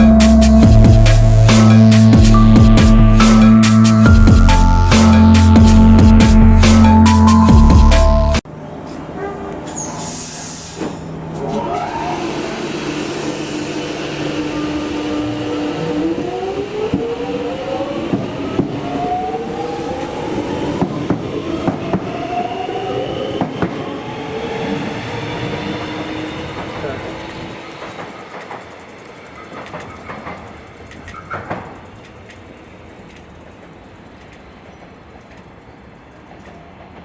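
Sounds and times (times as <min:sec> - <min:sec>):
electric train hum: 0:00.0 - 0:37.0
traction motors whine: 0:09.7 - 0:29.2
wheels clicking over rail joints: 0:26.3 - 0:37.0.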